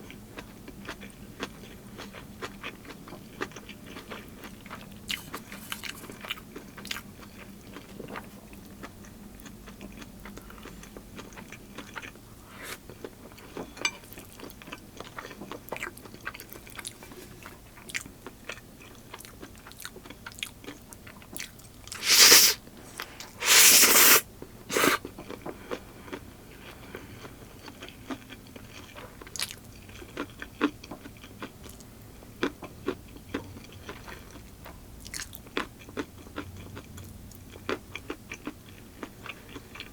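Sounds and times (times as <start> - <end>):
person chewing and crunching food: 0.0 - 39.9
wet mouth clicks: 22.0 - 22.6.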